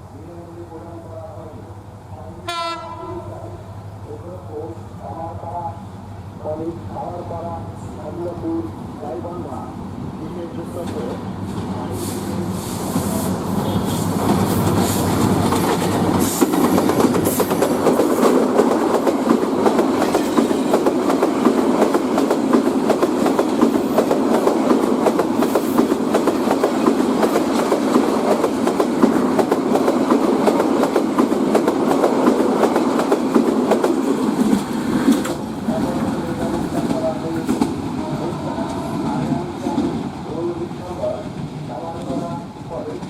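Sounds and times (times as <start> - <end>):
train wheels clattering on rails: 12.9 - 40.2.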